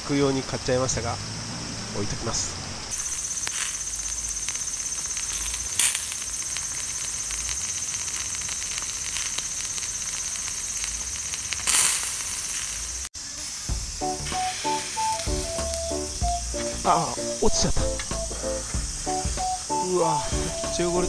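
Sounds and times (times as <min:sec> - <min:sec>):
fat sizzling on hot charcoal: 0:02.9 - 0:21.0
light music: 0:13.7 - 0:21.0.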